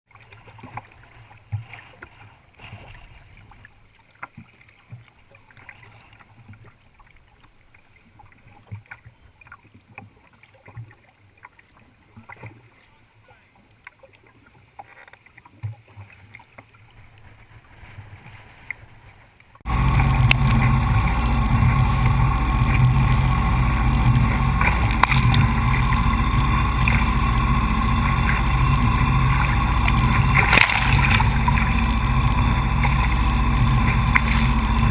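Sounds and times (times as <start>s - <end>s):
jet ski engine running: 19.6s - 34.9s.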